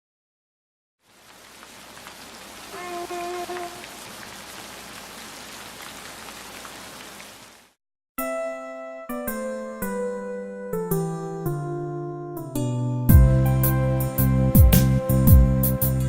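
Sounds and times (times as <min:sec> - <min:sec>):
steady rain falling: 0:01.0 - 0:07.8
steady pitched call: 0:02.5 - 0:04.8
music: 0:08.2 - 0:16.0.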